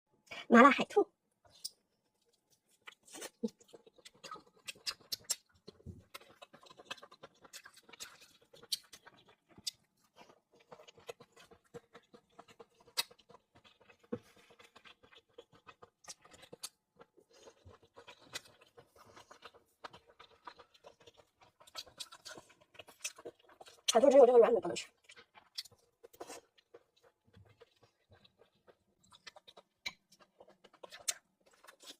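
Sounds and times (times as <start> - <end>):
clicks and taps of eating: 26.6 - 31.6.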